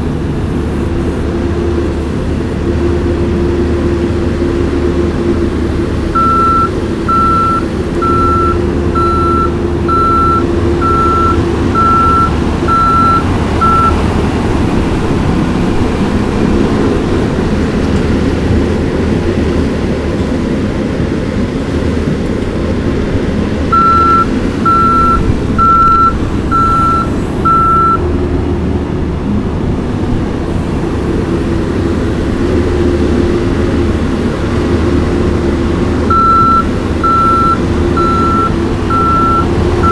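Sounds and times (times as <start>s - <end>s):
skid steer engine running: 0.0s - 39.9s
reversing alarm beeps: 6.2s - 14.0s, 23.7s - 28.0s, 36.1s - 39.9s.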